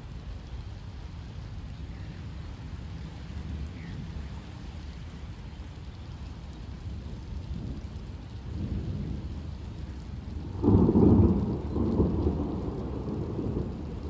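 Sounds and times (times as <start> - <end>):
steady rain: 0.0 - 14.0
thunder rumbling: 8.6 - 14.0
loud thunder clap: 10.5 - 14.0.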